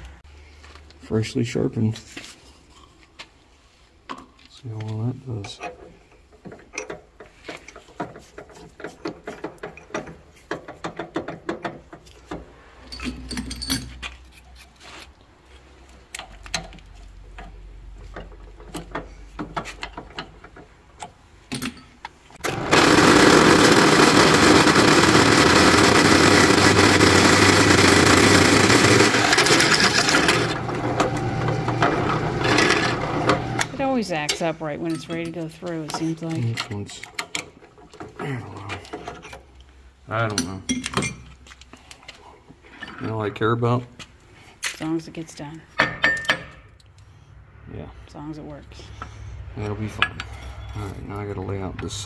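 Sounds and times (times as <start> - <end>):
drill grinding into steel: 22.4 - 33.8.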